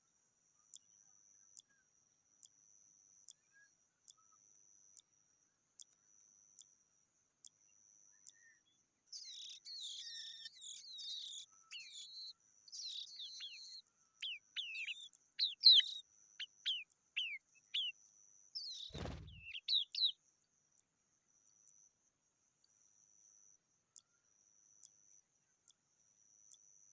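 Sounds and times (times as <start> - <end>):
nestlings chirping: 9.1 - 18.0, 18.6 - 20.2.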